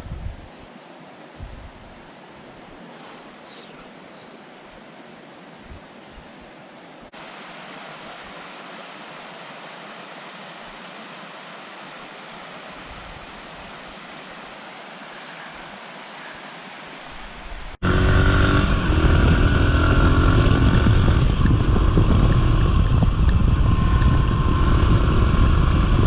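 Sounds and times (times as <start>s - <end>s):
river flowing: 0.0s - 20.4s.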